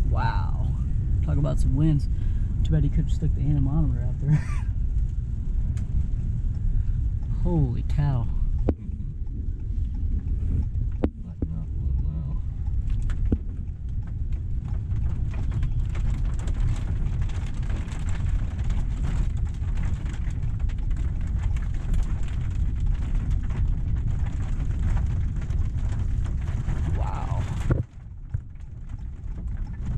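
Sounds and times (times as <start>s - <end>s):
strong wind buffeting a car: 0.0s - 29.9s.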